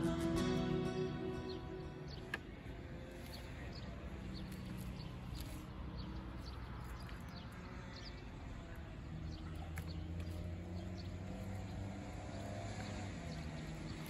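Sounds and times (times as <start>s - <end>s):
small birds chirping: 0.4s - 14.0s.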